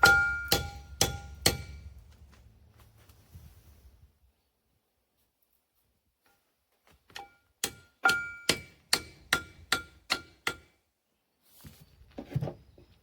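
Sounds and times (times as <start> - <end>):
hammer striking metal cover: 0.0 - 1.9, 7.2 - 10.7.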